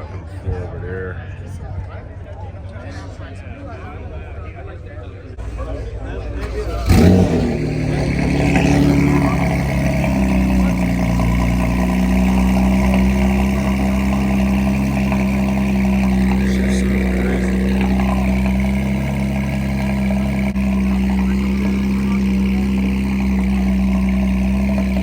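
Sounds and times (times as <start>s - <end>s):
car engine running: 5.3s - 25.0s.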